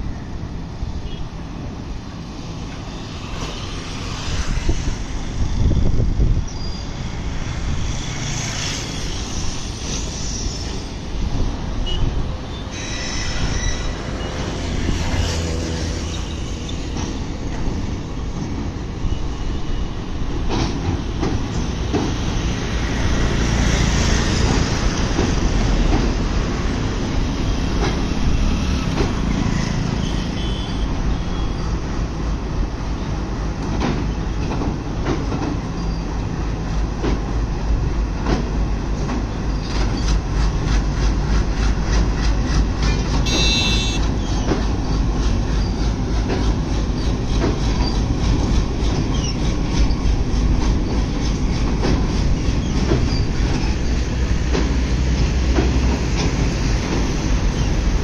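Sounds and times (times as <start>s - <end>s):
train rumbling: 0.0s - 58.0s
wheels clacking on rails: 2.6s - 58.0s
wheel squeals: 12.5s - 14.6s, 49.1s - 50.0s, 52.4s - 53.9s.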